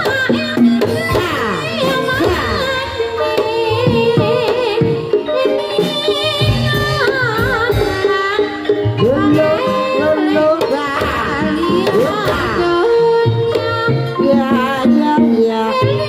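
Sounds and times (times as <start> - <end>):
person singing wavering vocal: 8.4 - 16.0.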